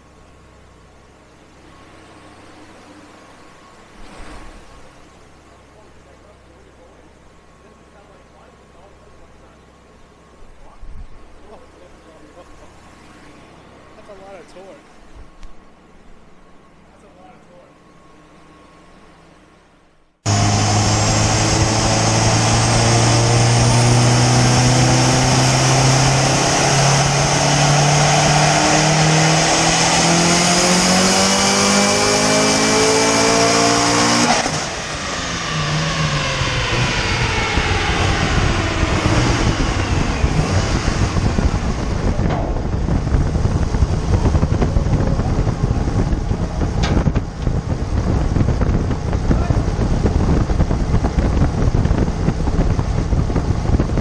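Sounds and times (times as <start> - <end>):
turbocharged engine revving: 20.3 - 54.0.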